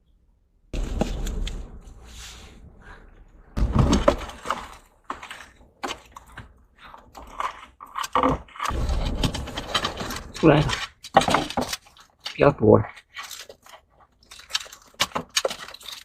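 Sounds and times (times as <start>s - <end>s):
scraping among rocks and shells: 0.8s - 16.0s.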